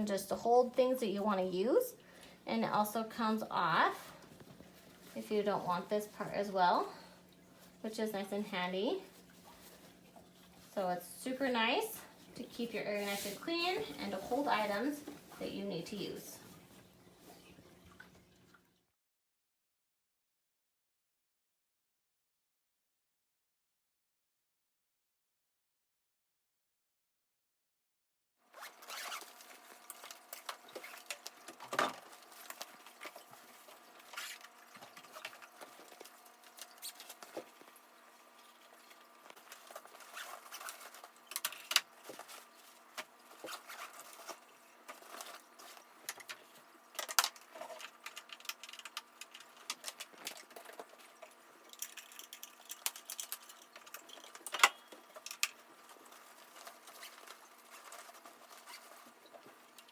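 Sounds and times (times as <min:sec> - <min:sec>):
fabric bag rustling: 0:08.9 - 0:17.4
zipper running: 0:28.6 - 0:29.7.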